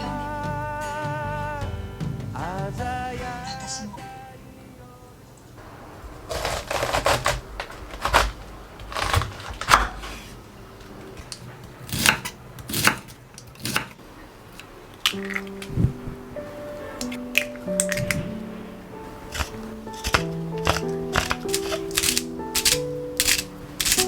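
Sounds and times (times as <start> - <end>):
utensils clicking and clattering: 10.8 - 15.8, 16.8 - 24.0
soft musical notes: 15.2 - 24.0.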